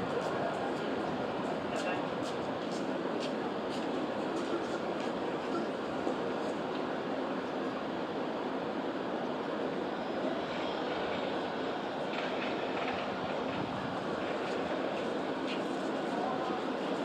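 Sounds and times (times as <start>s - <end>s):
train rumbling: 9.0s - 17.0s.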